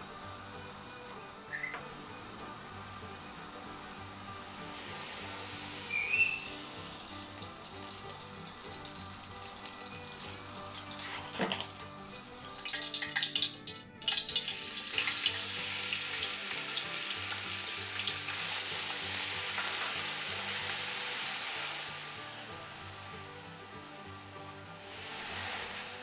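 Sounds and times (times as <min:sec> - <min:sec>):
hot oil sizzling: 0:00.0 - 0:26.0.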